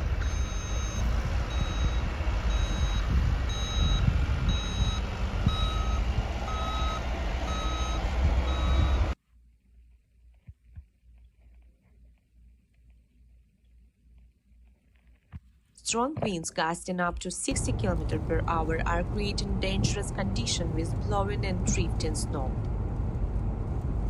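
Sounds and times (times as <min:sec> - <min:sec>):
loud low rumble: 0:00.0 - 0:09.2, 0:17.5 - 0:24.0
reversing alarm beeping: 0:00.2 - 0:09.2.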